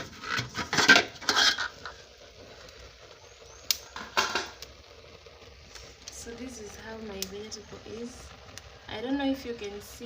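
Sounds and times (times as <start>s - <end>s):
pot lid clatter: 0.0s - 2.0s, 4.0s - 4.6s
faint background noise: 0.0s - 10.0s.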